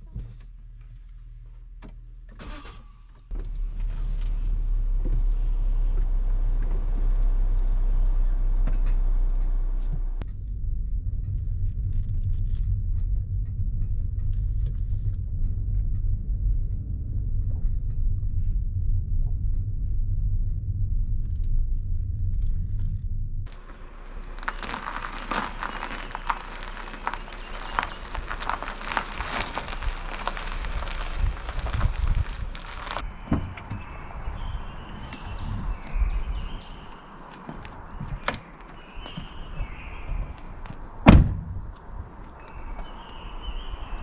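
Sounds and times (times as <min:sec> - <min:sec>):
car engine and road rumble: 0:00.0 - 0:44.0.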